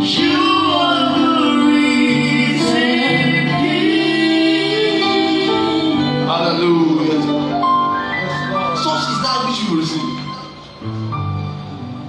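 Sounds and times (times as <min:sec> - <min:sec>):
voices singing gospel: 0:00.0 - 0:07.6
instrumental accompaniment: 0:00.0 - 0:12.0.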